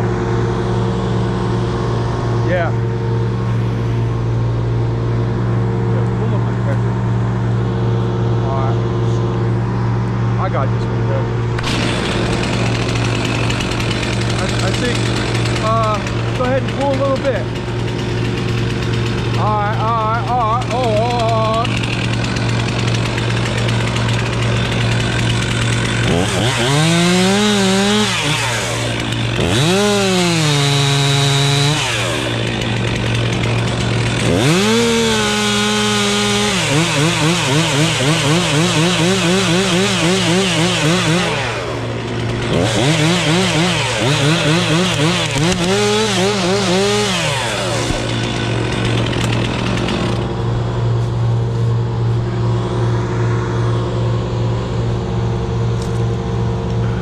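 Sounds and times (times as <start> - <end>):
low engine hum: 0.0 - 57.0
chainsaw cutting wood: 11.4 - 52.7.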